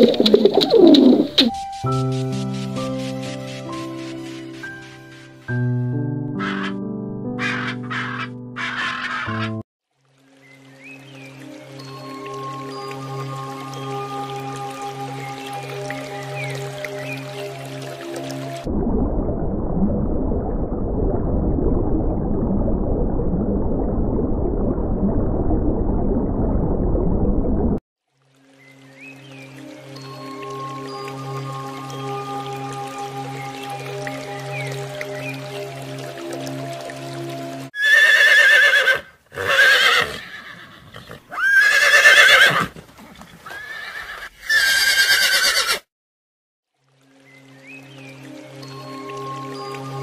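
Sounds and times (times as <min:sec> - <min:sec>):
muffled underwater gurgling rush: 0:18.6 - 0:27.8
horse whinnying: 0:37.8 - 0:45.9.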